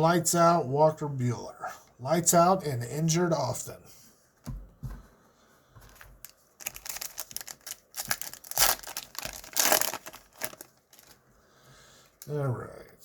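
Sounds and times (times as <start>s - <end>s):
wrapper tearing and crinkling: 6.2s - 11.2s.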